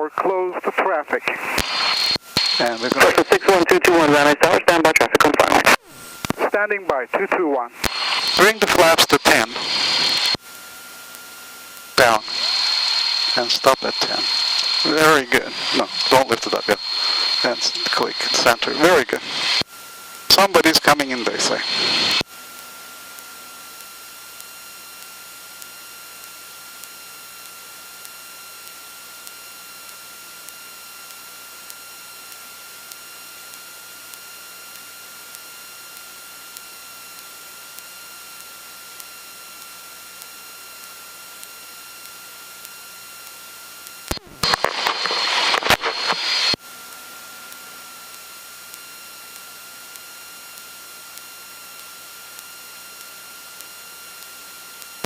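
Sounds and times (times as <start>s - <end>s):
choppy burst of radio noise: 0.0s - 10.4s, 12.0s - 19.6s, 20.3s - 22.2s, 44.1s - 46.6s
headset intercom hiss: 0.0s - 10.4s, 12.0s - 19.6s, 20.3s - 22.2s, 44.1s - 46.6s.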